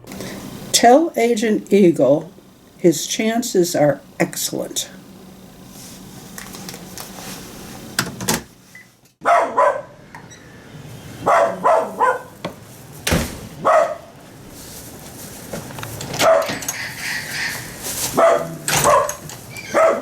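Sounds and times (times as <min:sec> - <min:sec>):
dog barking: 0:09.2 - 0:10.0, 0:11.2 - 0:12.4, 0:13.6 - 0:14.2, 0:16.2 - 0:16.7, 0:17.3 - 0:20.0.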